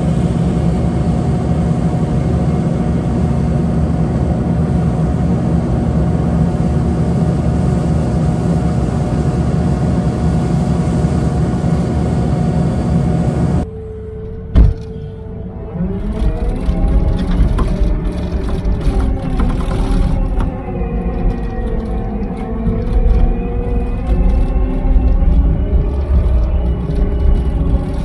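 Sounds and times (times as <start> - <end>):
heavy engine running: 0.0 - 28.0.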